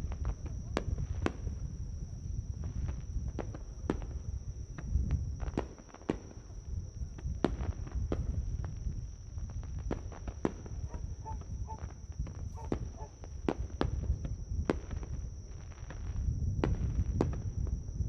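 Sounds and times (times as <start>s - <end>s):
continuous low rumble: 0.0s - 18.0s
high-pitched insect drone: 10.9s - 11.9s, 12.5s - 13.2s.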